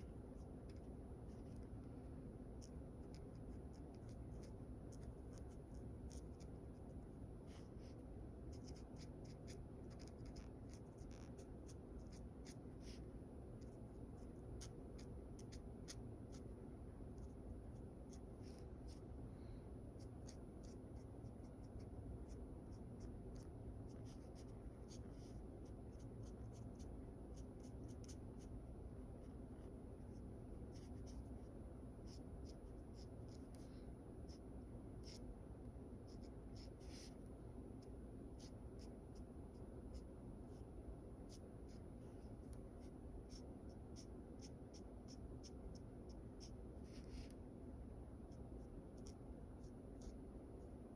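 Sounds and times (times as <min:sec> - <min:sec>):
low background hum: 0:00.0 - 0:50.9
pencil scratching on paper: 0:07.5 - 0:16.4, 0:43.3 - 0:47.4, 0:48.3 - 0:50.2.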